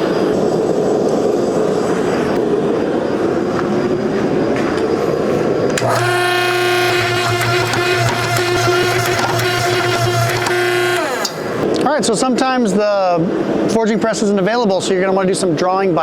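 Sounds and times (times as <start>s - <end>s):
machine hum: 5.2s - 11.8s
machinery rushing noise: 5.8s - 11.8s.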